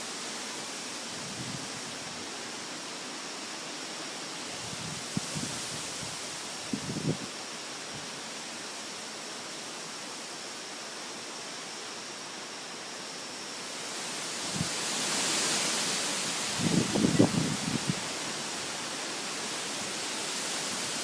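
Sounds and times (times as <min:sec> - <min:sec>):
storm winds rushing: 0:16.5 - 0:18.1.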